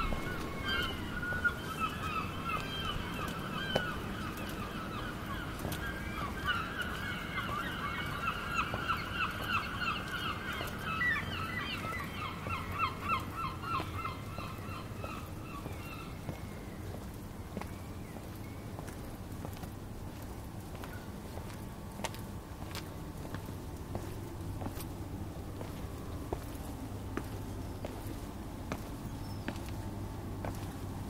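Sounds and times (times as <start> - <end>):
birds making harsh calls: 0.0 - 16.2.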